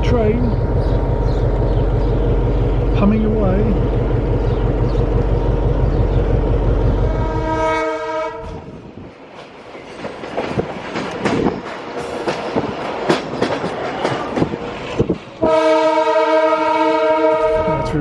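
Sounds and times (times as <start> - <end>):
diesel train running: 0.0 - 18.0
diesel locomotive horn blast: 6.8 - 8.8, 15.4 - 18.0
wheels clattering on rails: 8.4 - 15.7.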